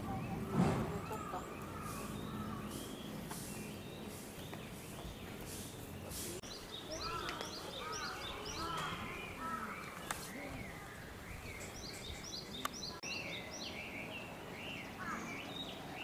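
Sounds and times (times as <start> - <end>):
outdoor background hum: 0.0 - 10.2
small birds chirping: 0.0 - 16.0.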